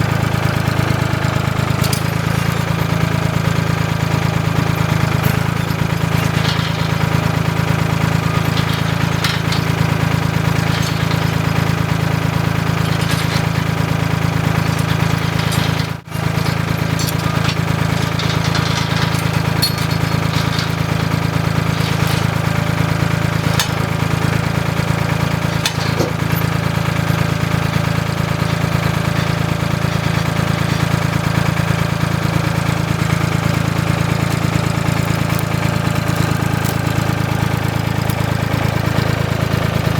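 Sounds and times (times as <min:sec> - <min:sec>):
tractor engine running: 0:00.0 - 0:39.9
faint clanks: 0:04.1 - 0:24.3, 0:25.3 - 0:31.4.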